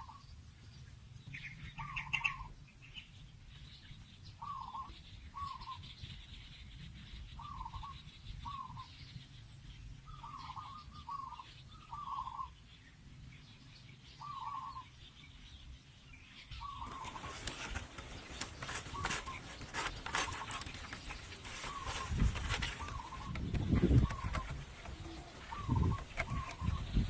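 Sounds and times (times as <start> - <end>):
short bird calls: 1.3 - 3.1, 10.1 - 12.6, 14.2 - 15.0, 16.5 - 27.0
sharp clicks and knocks: 16.9 - 26.9.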